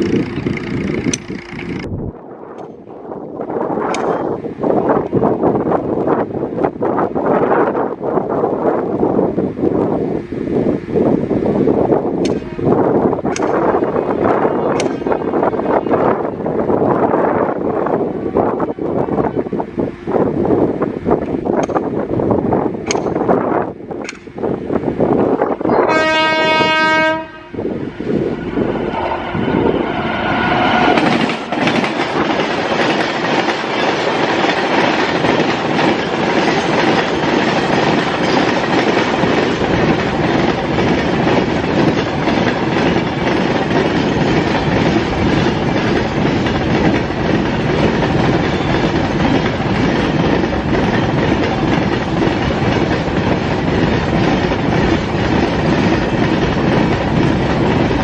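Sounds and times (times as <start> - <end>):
train wheels clattering over rails: 0.0 - 1.9, 3.7 - 5.2, 12.1 - 18.0, 21.1 - 25.6, 28.1 - 58.0
train horn: 12.3 - 13.0, 13.8 - 16.3, 25.6 - 29.8.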